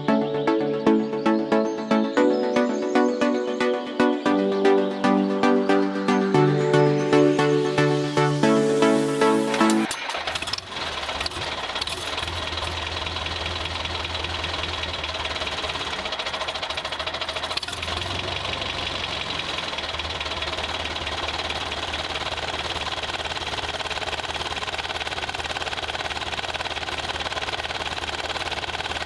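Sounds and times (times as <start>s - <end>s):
small motor with rapid clatter: 9.9s - 29.0s.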